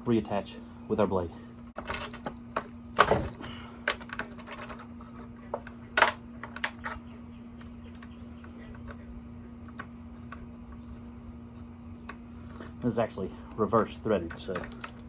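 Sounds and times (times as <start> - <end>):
steady low hum: 0.0 - 15.0
metal parts clicking and clacking: 13.6 - 15.0.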